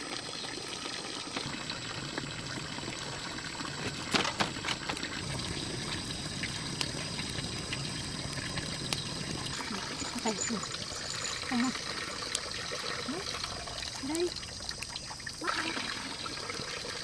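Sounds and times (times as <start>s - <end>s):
water running: 0.0s - 17.0s.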